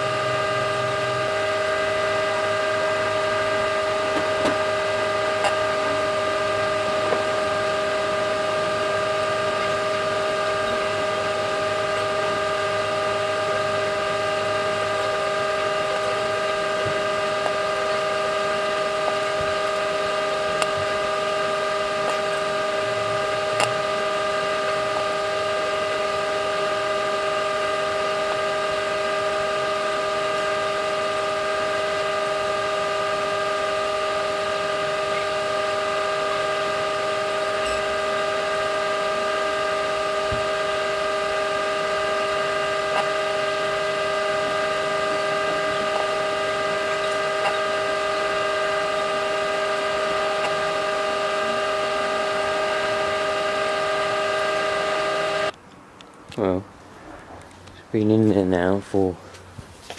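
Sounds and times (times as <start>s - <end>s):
microwave oven humming: 0.0s - 55.6s.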